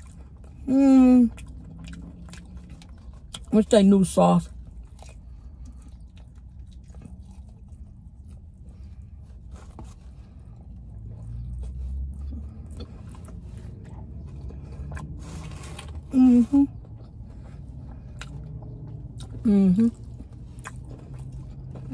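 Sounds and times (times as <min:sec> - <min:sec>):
low steady rumble: 0:00.0 - 0:21.9
person biting and chewing: 0:01.3 - 0:03.5, 0:11.0 - 0:21.9.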